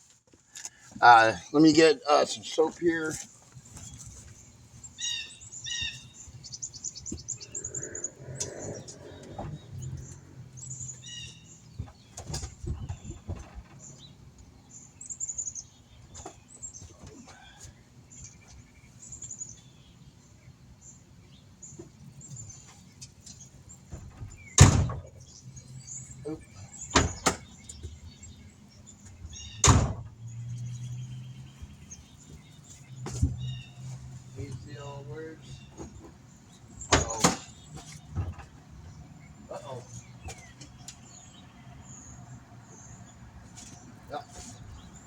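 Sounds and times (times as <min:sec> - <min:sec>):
songbirds chirping: 0:00.0 - 0:45.0
loud thump: 0:29.6 - 0:30.1.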